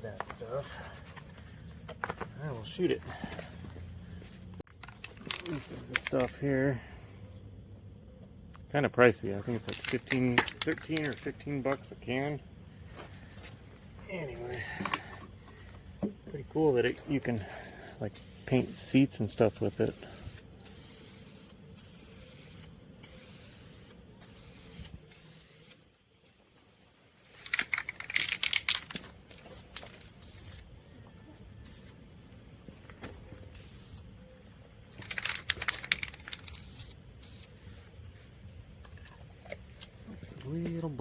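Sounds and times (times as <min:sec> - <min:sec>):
spray paint can bursts: 0:18.1 - 0:19.0, 0:19.6 - 0:25.8, 0:30.0 - 0:30.7, 0:31.6 - 0:32.0, 0:33.4 - 0:34.2, 0:35.0 - 0:37.7.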